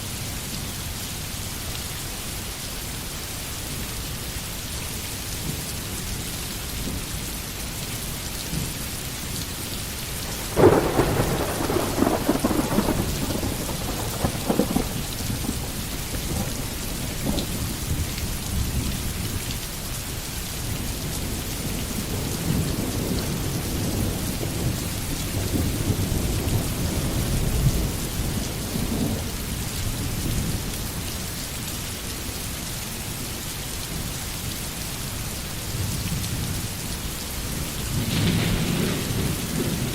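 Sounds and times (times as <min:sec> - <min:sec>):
rain falling in a forest: 0:00.0 - 0:39.9
thunder clap and rumble: 0:10.2 - 0:19.3, 0:37.9 - 0:39.9.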